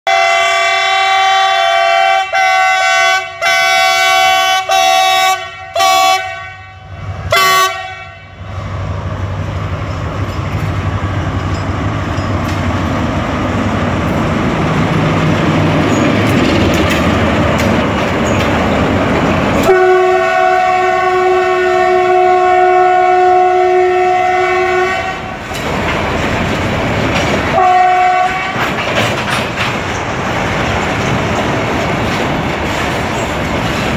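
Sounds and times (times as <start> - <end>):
locomotive horn blasts: 0.0 - 8.4, 19.6 - 25.4, 27.5 - 28.8
train rumbling past: 0.1 - 33.9.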